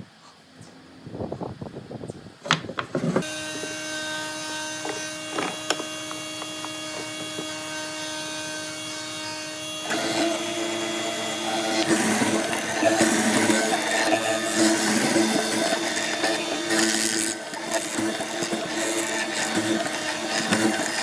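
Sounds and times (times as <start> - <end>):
power tool cutting wood: 3.2 - 21.0
power tool motor whine: 3.2 - 21.0
knocks of handling a tool: 4.8 - 7.6.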